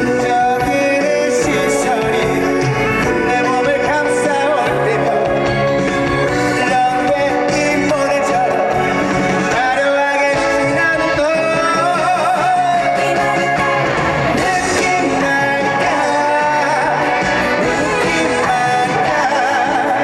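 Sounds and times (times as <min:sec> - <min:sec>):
man singing: 0:00.0 - 0:20.0
upbeat band with guitar: 0:00.0 - 0:20.0.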